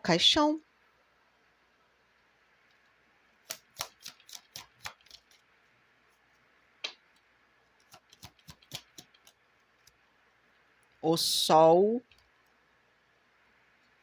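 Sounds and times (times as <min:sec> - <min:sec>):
cards clicking: 0:03.5 - 0:05.4, 0:07.8 - 0:09.4.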